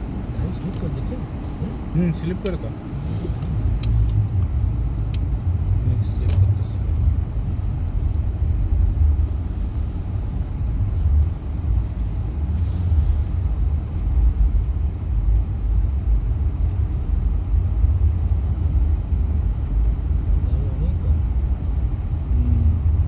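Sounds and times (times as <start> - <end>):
vehicle engine and tyres rumbling: 0.0 - 23.0.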